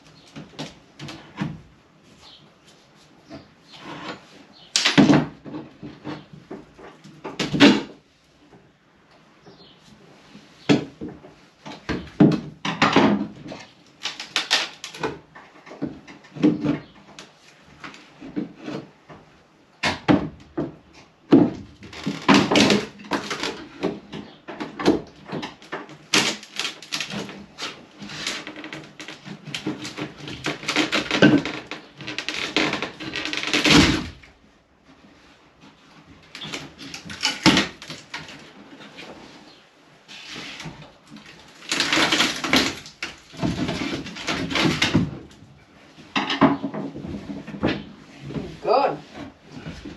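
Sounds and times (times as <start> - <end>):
knocking and clattering of tools: 3.3 - 8.7, 10.6 - 34.4, 40.6 - 49.9.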